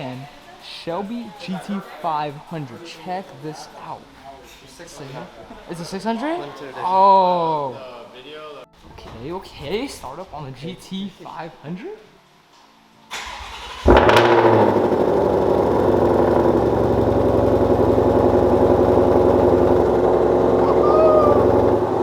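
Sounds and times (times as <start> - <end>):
starter motor cranking: 13.1 - 22.0
car engine idling loudly: 13.8 - 22.0.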